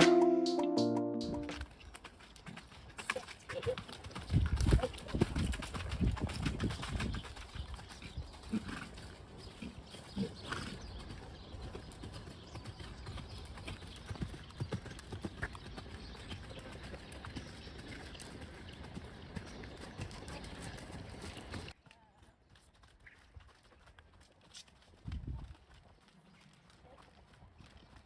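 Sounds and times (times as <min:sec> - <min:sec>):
horse hoofbeats: 0:01.4 - 0:28.0
wind buffeting microphone: 0:04.2 - 0:08.3, 0:25.0 - 0:25.5.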